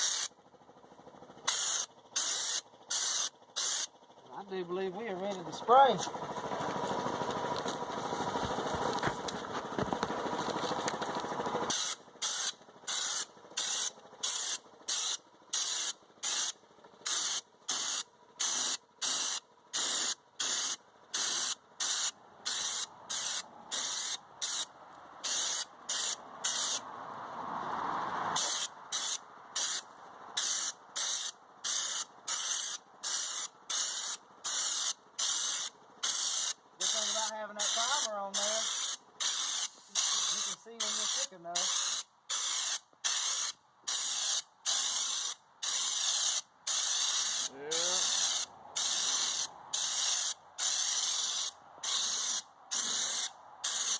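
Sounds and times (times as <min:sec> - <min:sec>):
spray gun hissing: 0:00.0 - 0:00.3, 0:01.5 - 0:03.9, 0:17.1 - 0:26.8, 0:28.4 - 0:29.8, 0:30.4 - 0:53.9.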